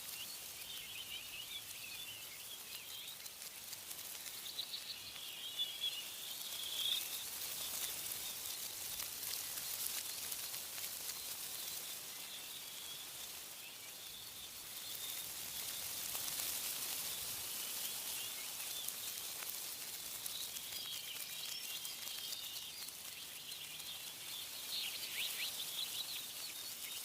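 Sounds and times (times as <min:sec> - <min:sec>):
small birds chirping: 0:00.0 - 0:27.0
wind rustling tree leaves: 0:00.0 - 0:27.0.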